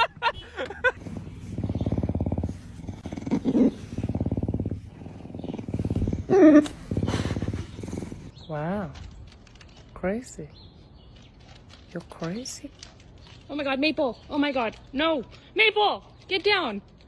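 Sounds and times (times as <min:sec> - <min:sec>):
cat purring loudly: 0:01.0 - 0:08.3.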